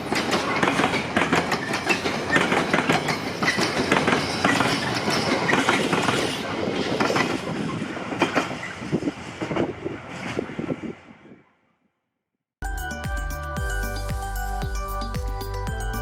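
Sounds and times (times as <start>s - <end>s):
wheels clicking over rail joints: 0.0s - 10.4s
train rumbling past: 0.0s - 11.5s.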